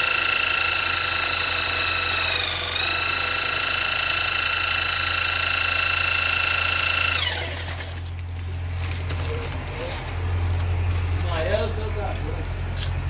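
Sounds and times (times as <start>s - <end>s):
high-pitched motor whining: 0.0s - 8.0s.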